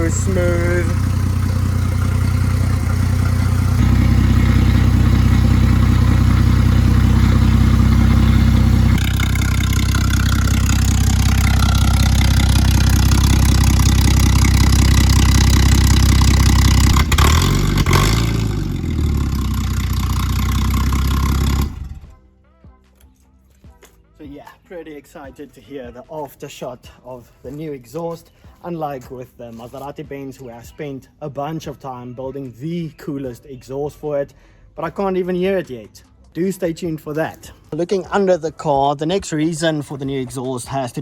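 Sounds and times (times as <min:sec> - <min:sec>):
car engine idling through loud exhaust: 0:00.0 - 0:22.1
engine blipped: 0:00.0 - 0:22.2.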